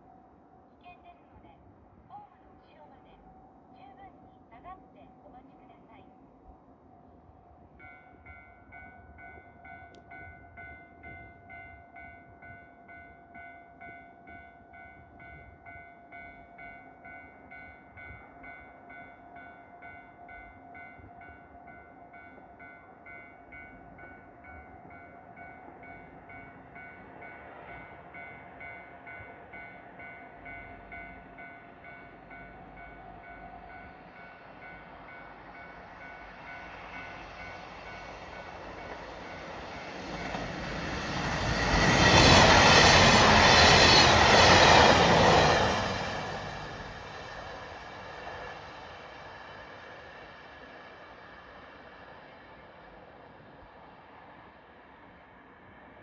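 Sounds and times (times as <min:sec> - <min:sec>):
railway warning bell ringing: 0:02.9 - 0:49.8
diesel train rumble: 0:30.4 - 0:51.8.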